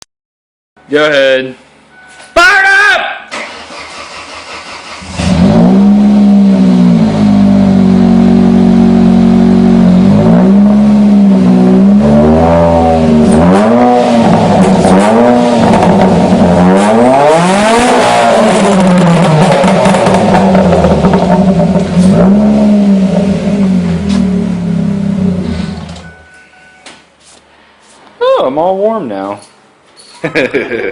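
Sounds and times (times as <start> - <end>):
car engine idling and revving: 3.4 - 26.2.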